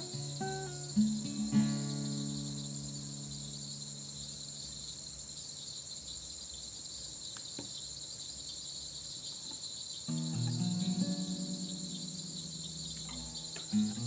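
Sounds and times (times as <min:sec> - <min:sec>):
crickets chirring: 0:00.0 - 0:14.0
faint pulsing trill: 0:10.1 - 0:14.0.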